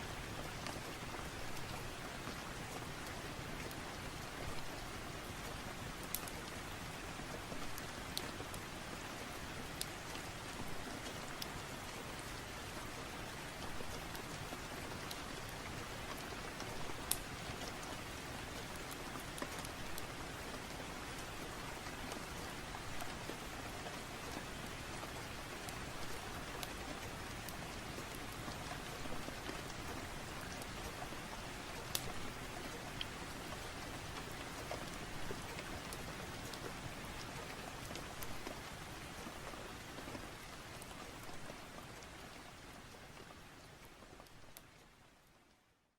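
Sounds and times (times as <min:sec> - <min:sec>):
steady rain falling: 0:00.0 - 0:45.9
fireplace crackling and popping: 0:04.5 - 0:06.6, 0:13.4 - 0:20.7, 0:21.8 - 0:42.0.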